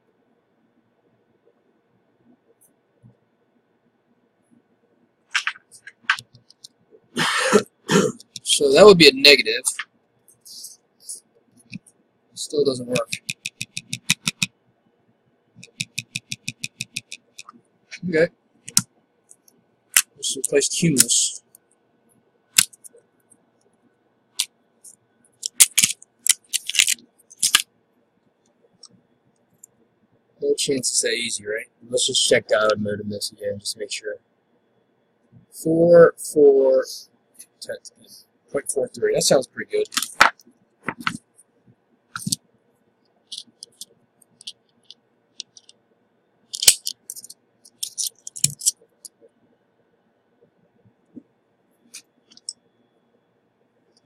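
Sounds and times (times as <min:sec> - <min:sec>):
metal tools clicking: 0:25.4 - 0:27.6, 0:46.5 - 0:48.7.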